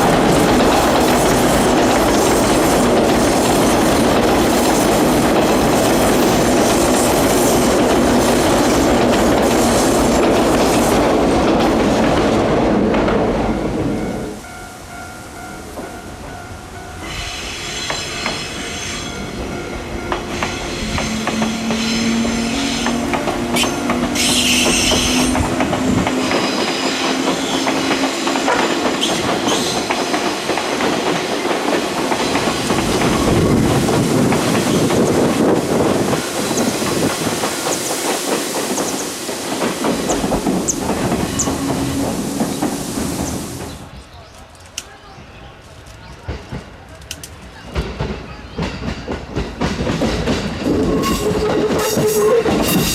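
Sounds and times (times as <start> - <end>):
wheels clattering over rail joints: 20.0 - 43.9.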